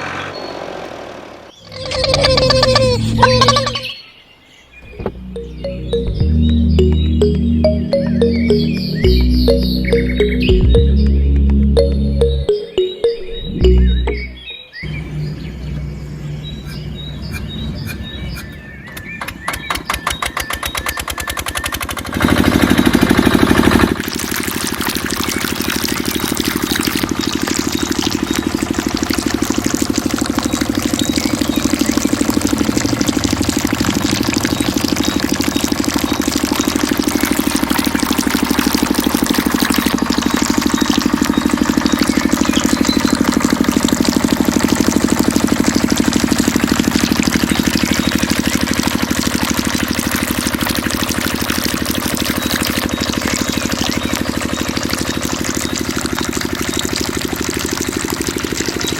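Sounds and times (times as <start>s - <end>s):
small water pump engine running: 0.0s - 3.9s, 19.4s - 58.9s.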